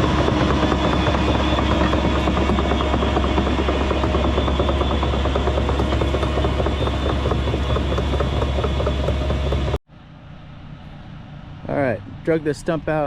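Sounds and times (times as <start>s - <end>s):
diesel engine running rattly: 0.0s - 9.8s
quiet engine sound: 0.0s - 13.0s.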